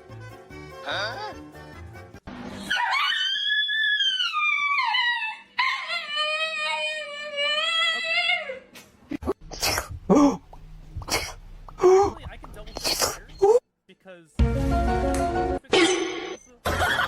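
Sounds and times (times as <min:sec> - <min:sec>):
dog howling: 0:02.7 - 0:08.6.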